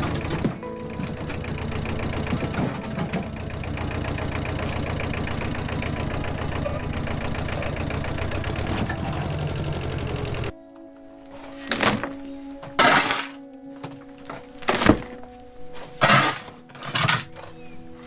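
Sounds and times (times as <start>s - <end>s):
engine running steadily: 0.0s - 10.5s.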